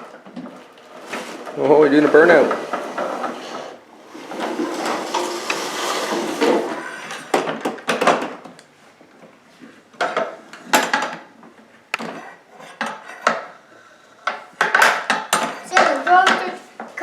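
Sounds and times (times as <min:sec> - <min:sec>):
toy tractor loader rattling: 0:00.4 - 0:07.2.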